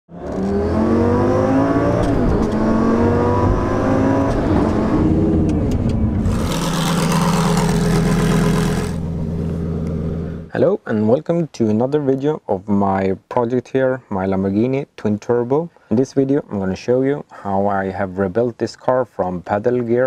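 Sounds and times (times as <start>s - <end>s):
sports car engine accelerating: 0.1s - 10.5s.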